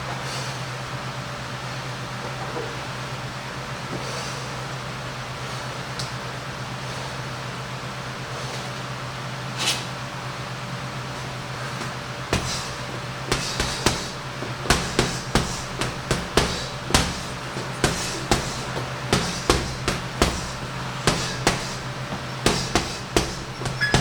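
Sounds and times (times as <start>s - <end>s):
punches on a heavy bag: 11.8s - 24.0s.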